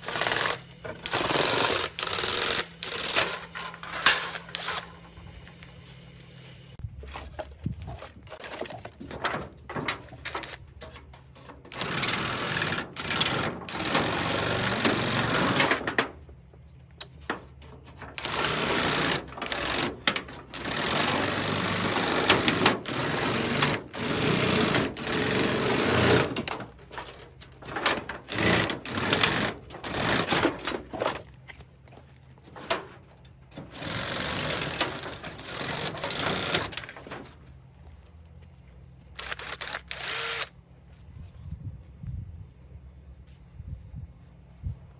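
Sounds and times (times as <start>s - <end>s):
drill-driven shear cutting metal sheet: 0.0s - 5.0s, 11.7s - 16.0s, 18.2s - 26.7s, 27.6s - 31.2s, 33.6s - 37.2s, 39.2s - 40.5s.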